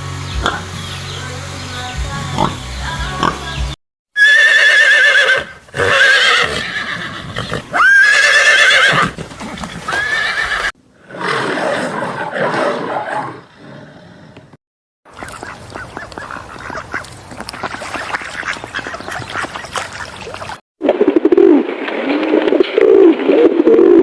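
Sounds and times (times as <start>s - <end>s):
horse whinnying: 4.2s - 10.7s.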